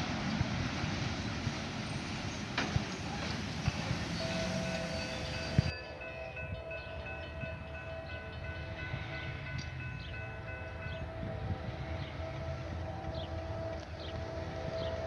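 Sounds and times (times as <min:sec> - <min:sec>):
train rumbling on rails: 0:00.0 - 0:15.0
locomotive horn chord: 0:10.9 - 0:15.0.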